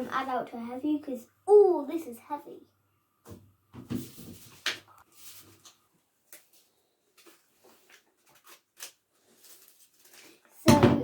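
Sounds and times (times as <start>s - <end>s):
paper rustling: 3.8s - 10.7s.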